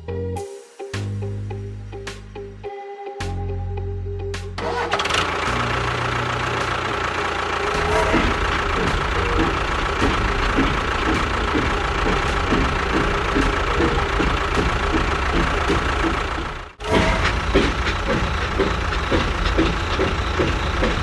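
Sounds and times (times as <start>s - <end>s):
regular knocking: 6.6s - 21.0s.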